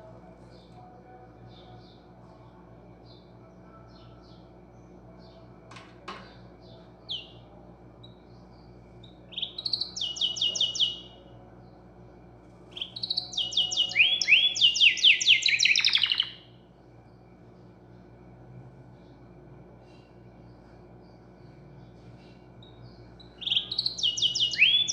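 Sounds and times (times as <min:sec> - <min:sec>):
songbird trilling: 0:09.0 - 0:11.2, 0:12.7 - 0:16.5, 0:22.6 - 0:24.9.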